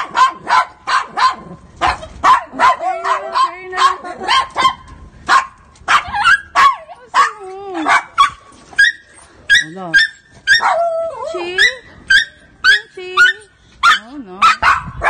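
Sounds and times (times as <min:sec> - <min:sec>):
dog barking: 0:00.0 - 0:08.4, 0:12.1 - 0:15.0.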